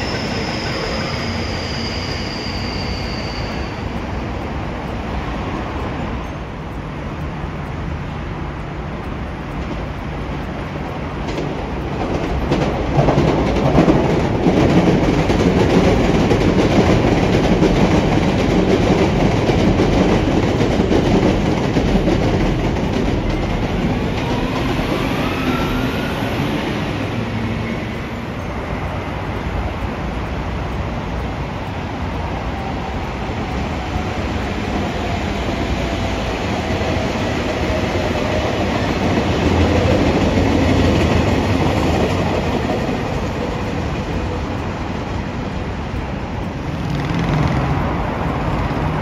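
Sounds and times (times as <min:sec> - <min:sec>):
train rumble and wheel noise: 0:00.0 - 0:49.0
rising whine: 0:23.0 - 0:29.6.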